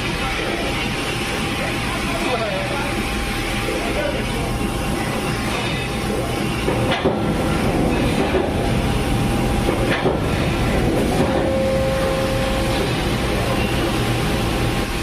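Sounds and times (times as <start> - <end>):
hydraulic machinery running: 0.0 - 15.0
steady whine: 0.0 - 15.0.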